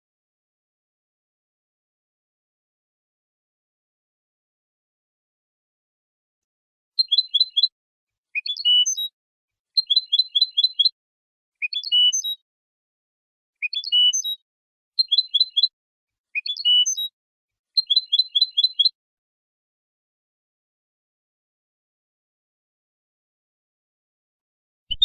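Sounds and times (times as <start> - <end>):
goldfinch singing: 7.0 - 7.7, 8.4 - 9.1, 9.8 - 11.0, 11.6 - 12.4, 13.6 - 14.4, 15.0 - 15.7, 16.4 - 17.1, 17.8 - 19.0.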